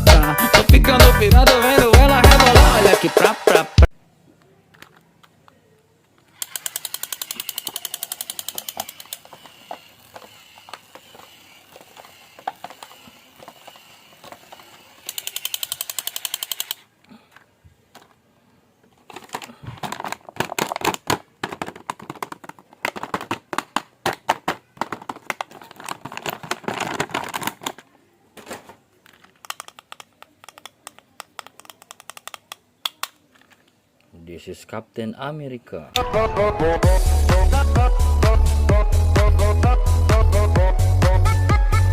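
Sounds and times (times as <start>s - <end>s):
plastic toys rattling: 4.7s - 5.4s, 6.0s - 18.2s, 18.8s - 33.8s.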